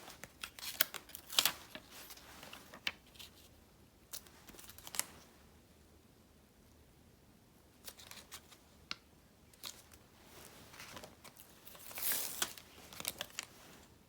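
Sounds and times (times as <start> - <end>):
paper rustling: 0.0 - 3.5, 4.1 - 5.3, 9.6 - 14.0.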